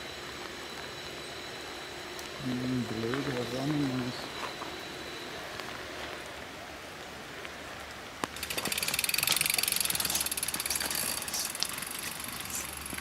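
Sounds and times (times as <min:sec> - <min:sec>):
bike hub ratchet clicking buzz: 0:08.4 - 0:13.0.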